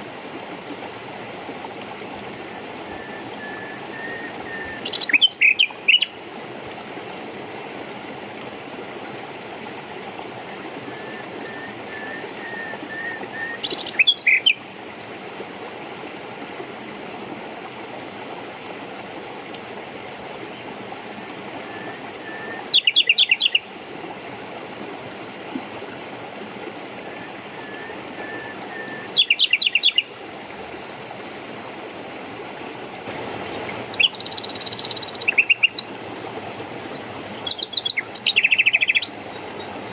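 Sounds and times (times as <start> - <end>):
stream running: 0.0 - 39.9
birds chirping: 3.5 - 6.2, 12.0 - 14.7, 27.6 - 30.2, 33.4 - 35.9, 36.9 - 39.9.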